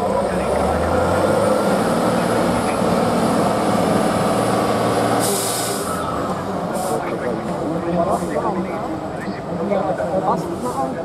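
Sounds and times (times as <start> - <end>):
diesel truck engine running: 0.0 - 11.0
short hiss: 5.2 - 6.0.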